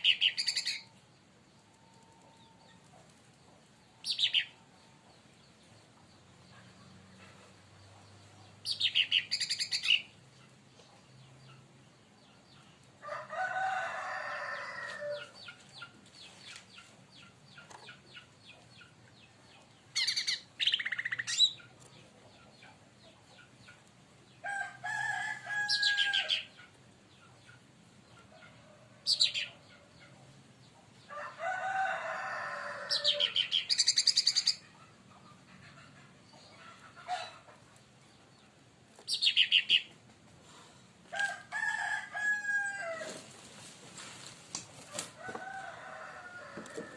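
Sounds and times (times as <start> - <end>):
rooster crowing: 13.0 - 15.3, 24.5 - 26.4, 31.1 - 33.4, 41.2 - 43.2, 45.2 - 46.9.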